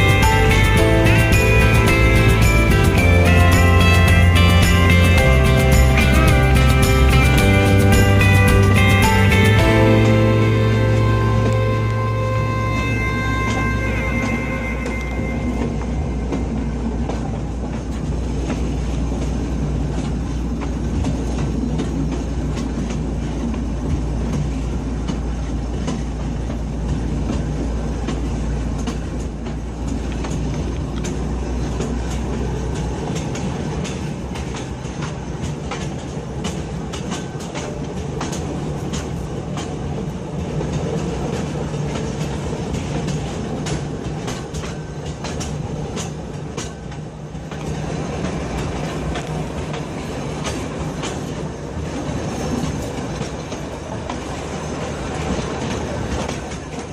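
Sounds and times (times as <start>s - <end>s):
deep low drone: 0.0s - 18.9s
train rumbling on rails: 0.0s - 56.9s.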